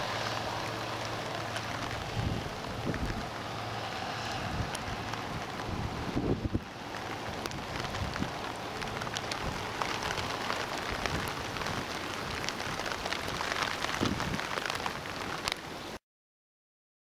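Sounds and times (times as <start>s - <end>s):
sharp raindrop ticks: 0.0s - 15.8s
steady rain: 0.0s - 16.0s.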